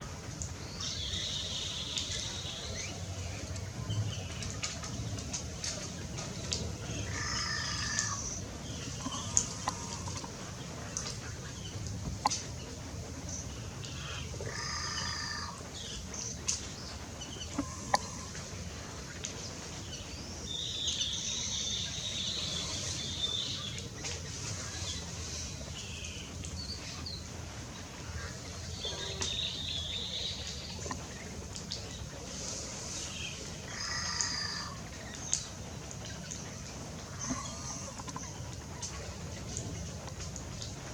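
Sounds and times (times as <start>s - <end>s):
birds calling and chirping: 0.6s - 40.9s
harsh bird calls: 14.0s - 16.1s.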